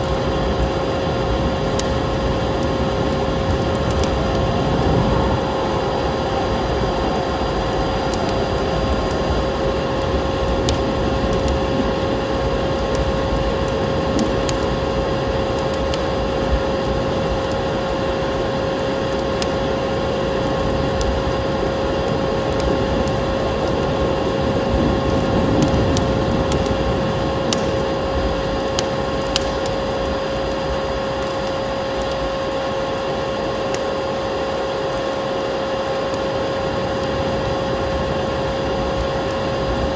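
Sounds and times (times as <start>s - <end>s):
constant droning tone: 0.0s - 39.9s
wood fire crackling: 0.0s - 39.9s
steady rushing background: 1.4s - 11.6s.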